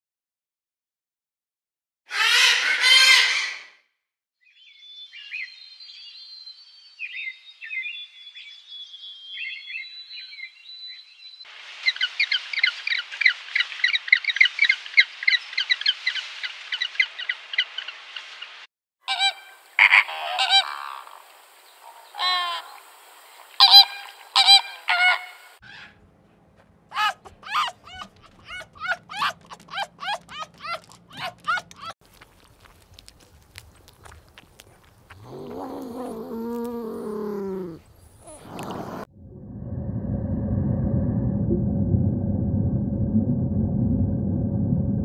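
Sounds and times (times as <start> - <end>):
birds twittering and chattering: 27.0 - 31.9, 34.0 - 39.0.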